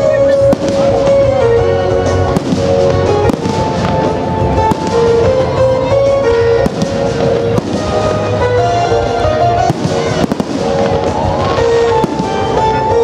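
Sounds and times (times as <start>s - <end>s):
music with held melody: 0.0s - 13.0s
firework shells bursting: 9.6s - 13.0s.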